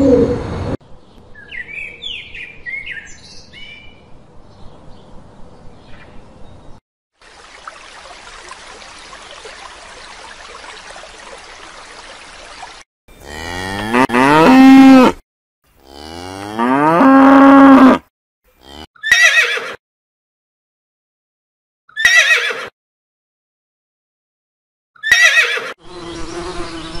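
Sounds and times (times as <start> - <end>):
cow mooing: 13.2 - 15.2, 15.8 - 18.0, 18.6 - 18.9
horse whinny: 22.0 - 22.7.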